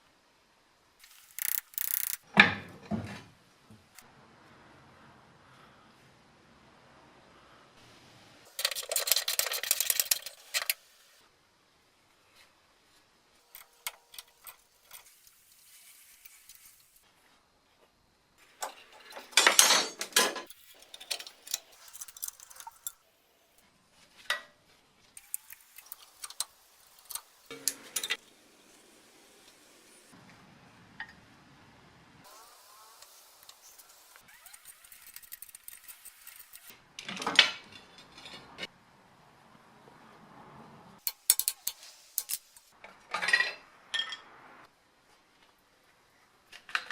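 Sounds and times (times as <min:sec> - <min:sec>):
metal tools rattling: 0:18.6 - 0:23.0.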